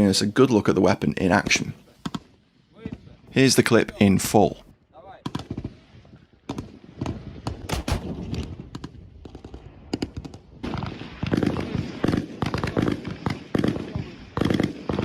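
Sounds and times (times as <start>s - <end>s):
single gunshots: 7.6s - 8.7s
automatic gunfire bursts: 7.7s - 8.4s.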